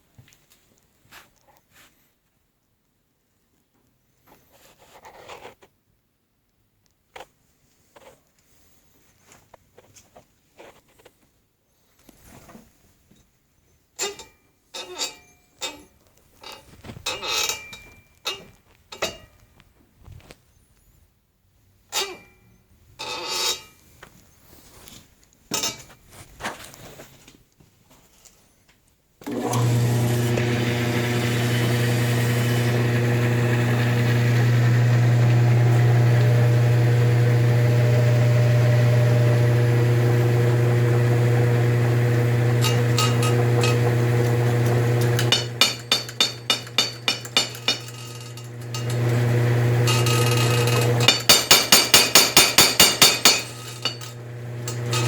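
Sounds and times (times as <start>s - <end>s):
electric motor humming: 29.3s - 55.0s
power hammer striking: 42.4s - 55.0s.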